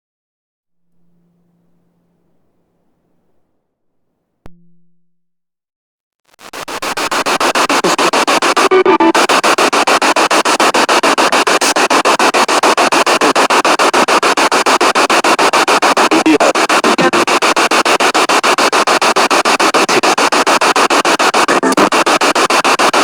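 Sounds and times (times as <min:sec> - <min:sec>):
pulsing radio static: 0:06.3 - 0:23.0.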